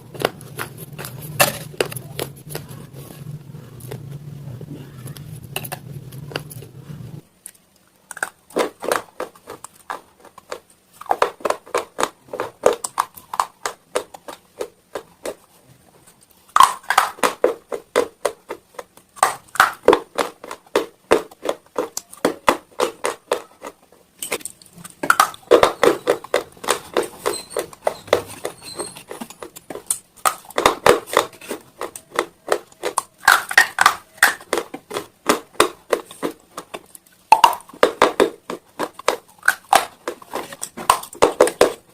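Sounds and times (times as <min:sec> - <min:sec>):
chewing brittle stone: 0:07.5 - 0:15.5, 0:16.5 - 0:41.9.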